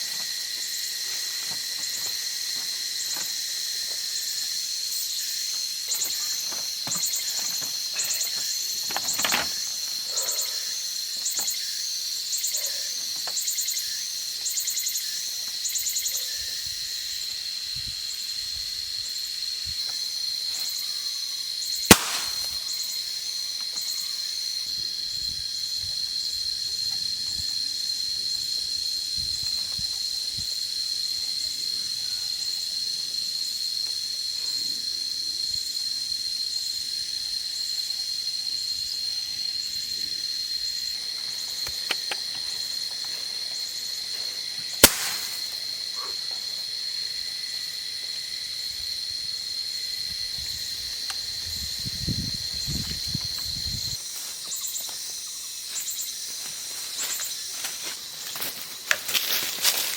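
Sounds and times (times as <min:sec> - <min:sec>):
insects droning high-pitched: 0:00.0 - 0:59.9
pulsing insect chirps: 0:20.2 - 0:24.3, 0:37.3 - 0:48.8
sharp snap: 0:21.9 - 0:22.8, 0:44.8 - 0:45.6.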